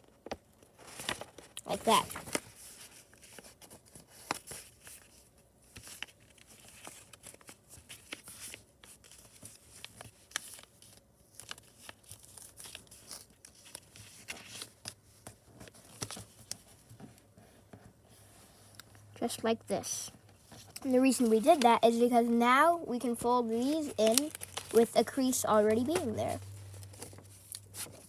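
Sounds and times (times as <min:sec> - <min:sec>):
paper crinkling and crackling: 0:00.2 - 0:28.0.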